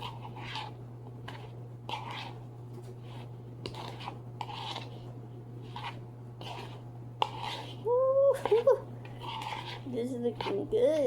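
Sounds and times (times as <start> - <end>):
steady low hum: 0.0 - 11.0
utensil scraping a pan: 0.0 - 11.0.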